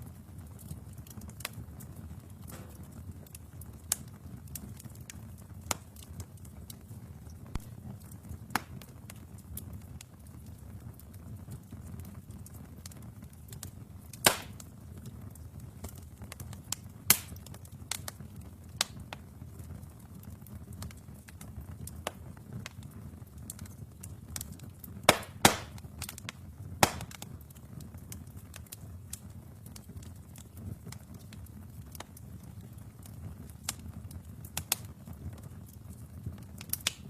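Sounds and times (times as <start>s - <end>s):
fire rumbling: 0.0s - 37.0s
logs crackling and popping: 0.0s - 37.0s.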